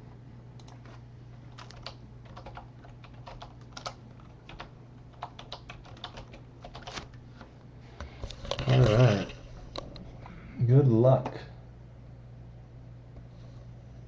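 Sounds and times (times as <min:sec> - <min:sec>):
low electrical hum: 0:00.0 - 0:14.0
computer keyboard typing: 0:00.6 - 0:00.9, 0:01.5 - 0:07.1.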